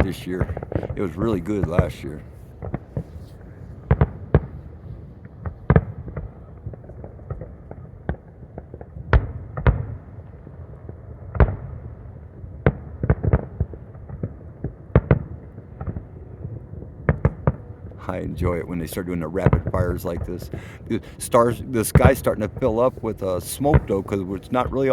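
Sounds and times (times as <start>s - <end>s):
steady low rumble: 0.0s - 7.9s, 15.4s - 24.9s
fireworks bangs: 0.0s - 24.9s.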